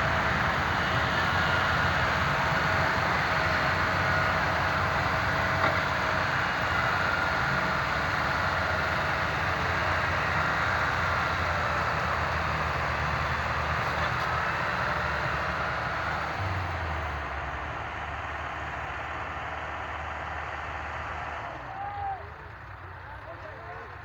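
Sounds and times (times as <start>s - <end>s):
tractor engine rumbling: 0.0s - 24.0s.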